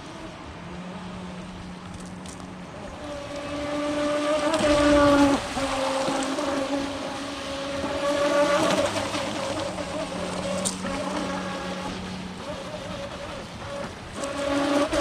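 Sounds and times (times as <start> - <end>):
electric motor whine of toy boat: 0.0 - 15.0.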